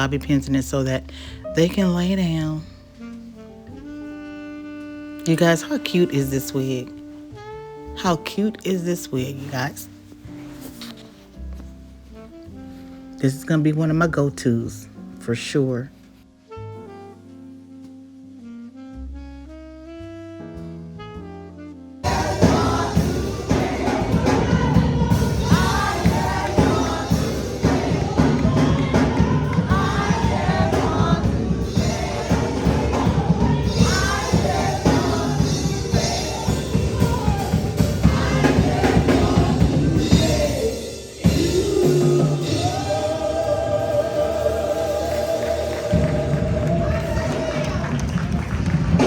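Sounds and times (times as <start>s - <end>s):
gospel choir singing with band: 22.0s - 49.0s.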